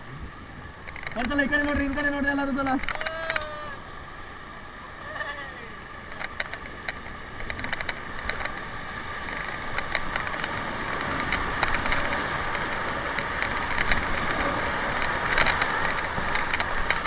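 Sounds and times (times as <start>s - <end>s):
whitewater rushing: 1.0s - 17.0s.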